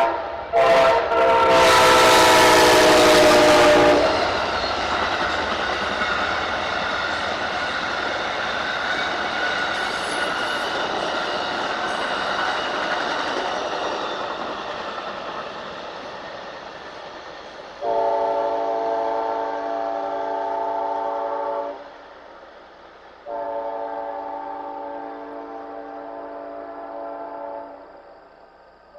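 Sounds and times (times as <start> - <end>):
locomotive air horn blasts: 0.0 - 4.3, 17.8 - 21.8, 23.3 - 27.9
passing train rolling: 0.0 - 28.9.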